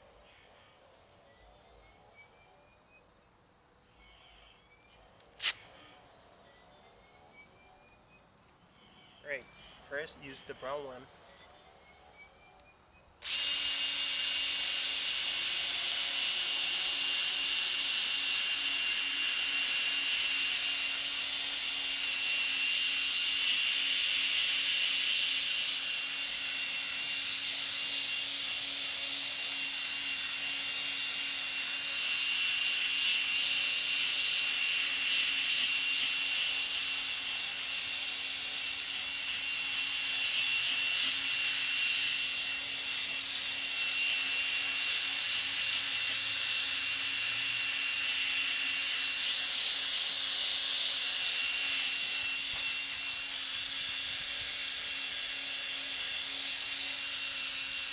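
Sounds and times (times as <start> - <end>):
power drill humming: 13.2 - 57.9.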